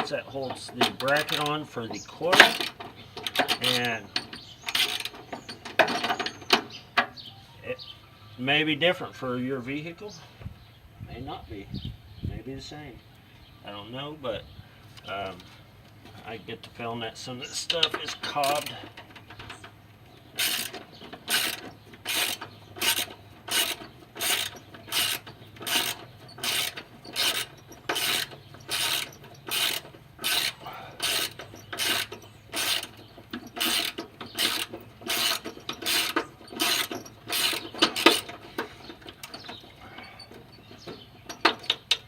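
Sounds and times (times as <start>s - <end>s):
ratchet wrench clicking: 4.7s - 5.2s, 20.4s - 38.4s.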